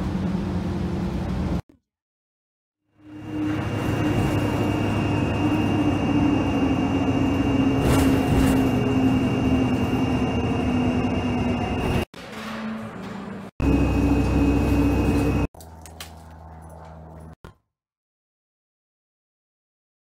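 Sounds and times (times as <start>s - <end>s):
aircraft engines rushing: 3.0s - 12.1s, 12.9s - 17.3s.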